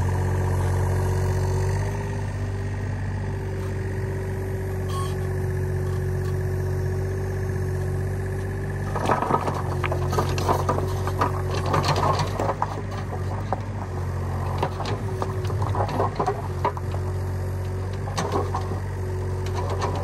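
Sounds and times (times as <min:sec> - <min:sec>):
diesel engine running with whine: 0:00.0 - 0:20.0
machine clanks and knocks: 0:08.9 - 0:17.1.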